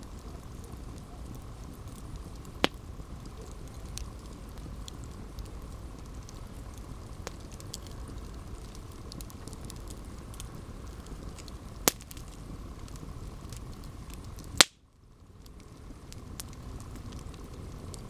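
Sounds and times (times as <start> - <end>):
campfire flames rushing: 0.0 - 18.0
fire crackling: 0.0 - 18.0
loud sharp pop from fire: 0.2 - 4.3, 9.1 - 14.8.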